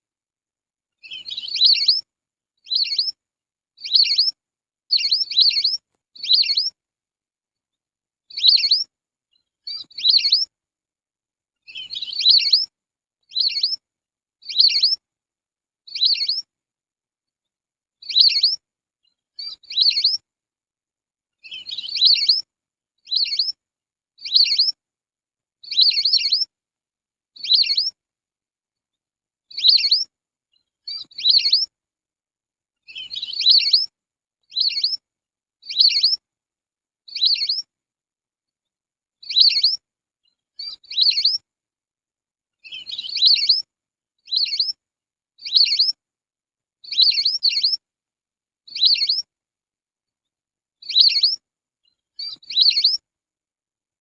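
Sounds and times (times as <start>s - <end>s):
shrill whistled duck calls: 1.4s - 2.0s, 5.0s - 6.7s, 8.4s - 8.8s, 19.8s - 20.2s, 31.2s - 31.7s.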